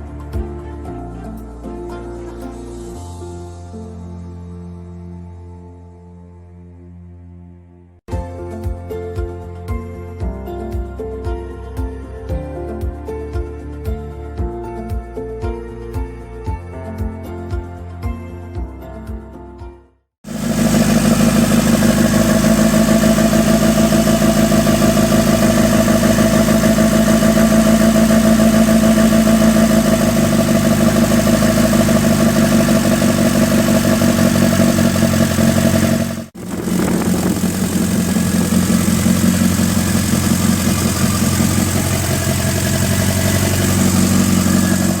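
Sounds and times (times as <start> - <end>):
lorry engine idling: 20.3 - 45.0.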